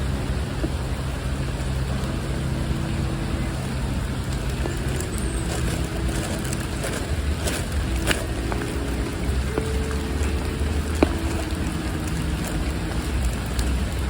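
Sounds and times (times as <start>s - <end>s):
rain falling through trees: 0.0s - 14.0s
road traffic hum: 0.0s - 14.0s.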